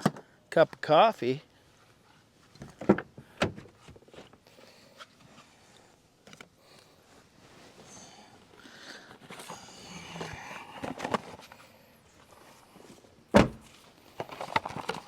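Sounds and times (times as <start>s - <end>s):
sharp loud thunk: 13.4s - 13.6s.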